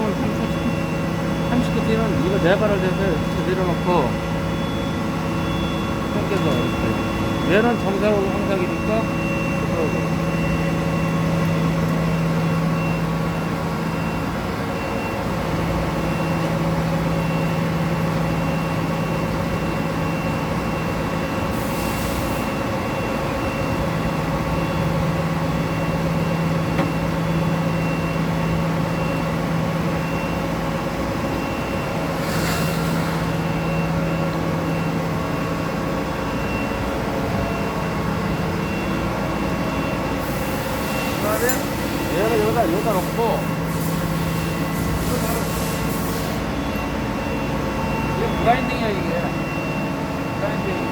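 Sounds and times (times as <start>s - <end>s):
short hisses: 32.2s - 33.3s.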